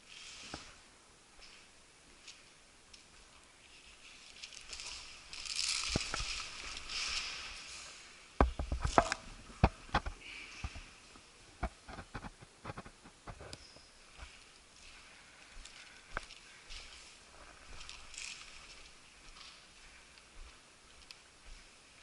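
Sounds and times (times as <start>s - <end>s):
hissing rustle: 3.4s - 8.3s
sharp irregular clicks and knocks: 8.4s - 10.8s.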